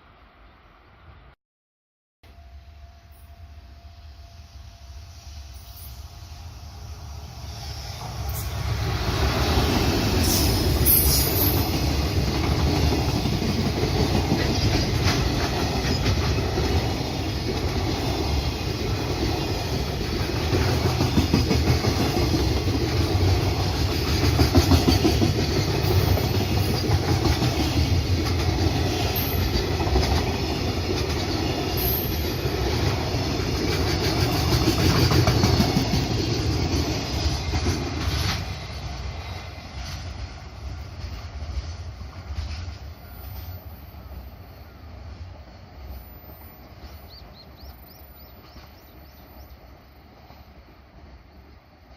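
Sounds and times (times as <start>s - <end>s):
freight train rumble: 2.3s - 51.9s
wheels clicking over rail joints: 19.2s - 38.6s.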